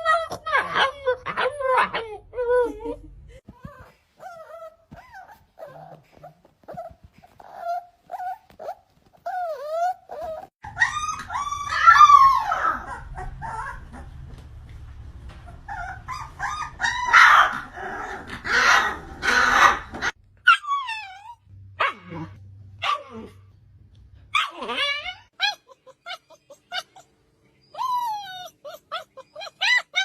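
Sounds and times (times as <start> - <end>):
puppies yipping and whining: 0.0 - 3.0, 3.6 - 14.4, 15.3 - 22.2, 24.4 - 30.0
low hum: 10.7 - 19.2, 21.2 - 24.3.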